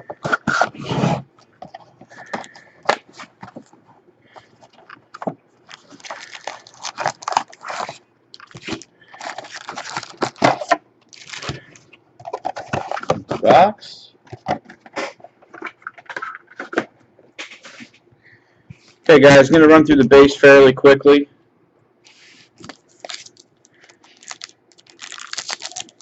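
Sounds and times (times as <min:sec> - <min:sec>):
card packaging crinkling and tearing: 0:04.6 - 0:13.4, 0:22.6 - 0:26.0.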